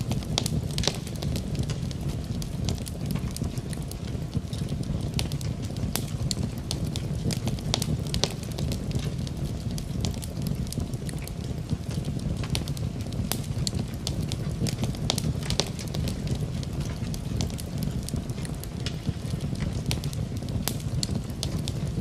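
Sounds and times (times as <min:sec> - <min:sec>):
steady rain: 0:00.0 - 0:22.0
wood fire crackling: 0:00.0 - 0:22.0.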